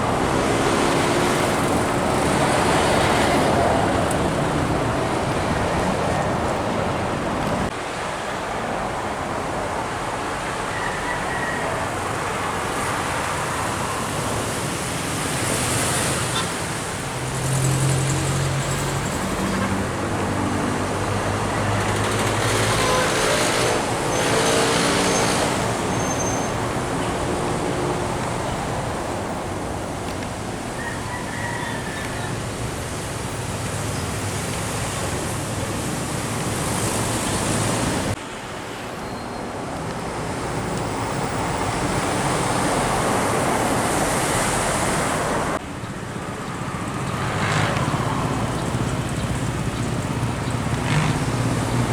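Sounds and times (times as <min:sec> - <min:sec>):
heavy truck engine passing: 0:00.0 - 0:07.7, 0:13.6 - 0:30.6, 0:40.5 - 0:51.9
passing traffic: 0:00.0 - 0:51.9.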